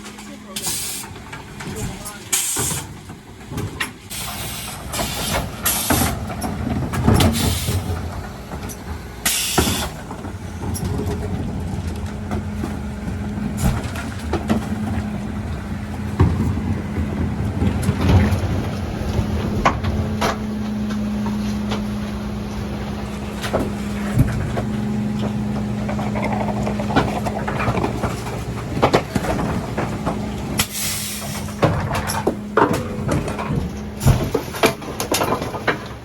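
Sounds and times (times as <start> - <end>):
refuse truck engine running: 0.0 - 36.0.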